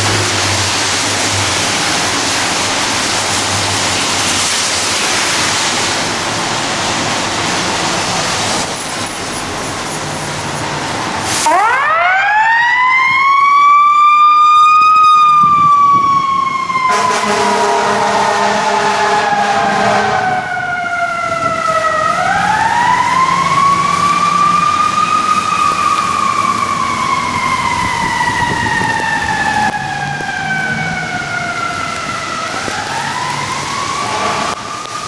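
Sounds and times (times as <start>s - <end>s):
heavy rain hissing: 0.0s - 11.6s
fire engine siren wailing: 0.0s - 35.0s.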